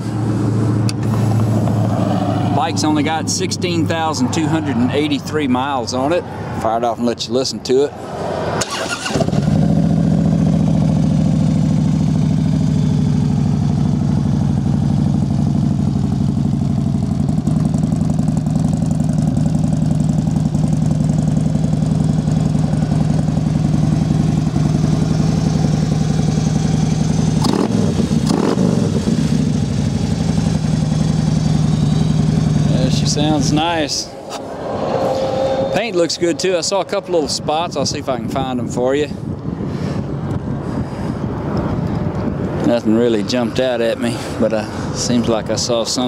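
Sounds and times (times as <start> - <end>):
motorcycle engine idling: 9.4 - 33.5
brief swooping sounds: 34.1 - 36.0.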